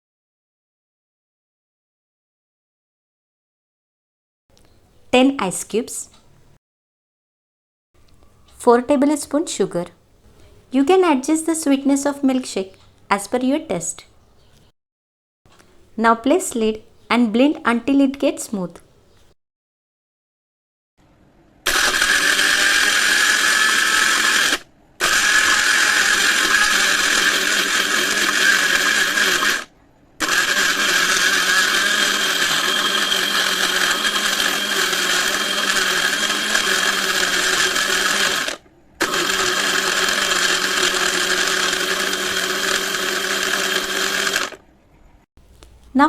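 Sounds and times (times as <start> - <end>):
electric blender whirring: 21.7 - 44.6.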